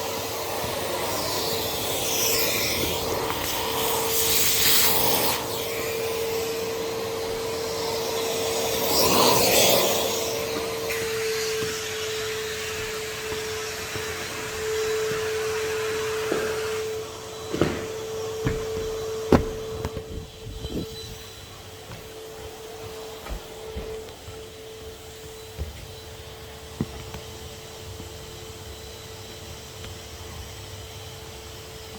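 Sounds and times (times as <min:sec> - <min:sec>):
vacuum cleaner running: 0:00.0 - 0:31.9
sharp knocks: 0:17.5 - 0:20.4.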